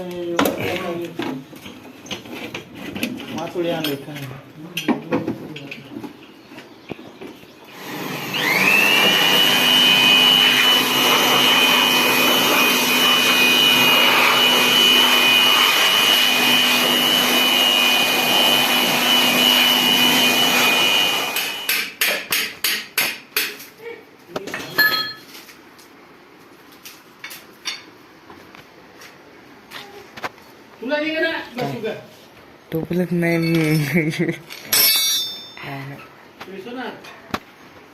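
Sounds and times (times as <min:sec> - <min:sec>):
power tool motor whining: 0:07.7 - 0:21.7.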